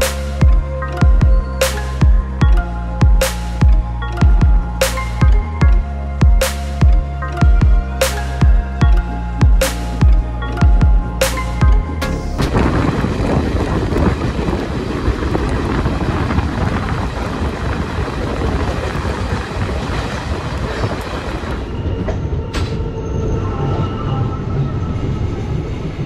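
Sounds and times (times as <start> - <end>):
wind buffeting microphone: 0.0 - 26.0
train wheels rumbling on track: 12.4 - 26.0.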